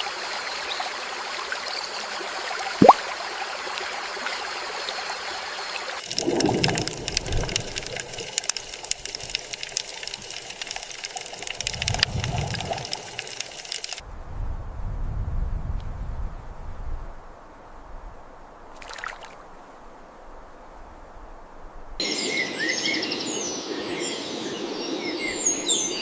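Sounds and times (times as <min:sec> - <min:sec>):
running water hissing: 0:00.0 - 0:14.0
water splashing and dripping: 0:02.5 - 0:14.0, 0:18.7 - 0:19.4.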